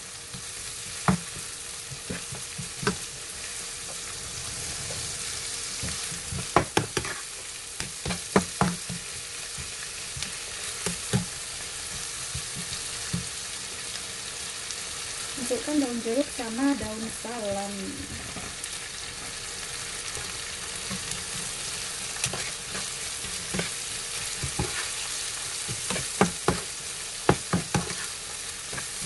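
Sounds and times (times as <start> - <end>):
paste sizzling in oil: 0.0 - 29.0
spatula knocking and scraping a pan: 0.3 - 4.0, 5.8 - 13.4, 20.2 - 29.0.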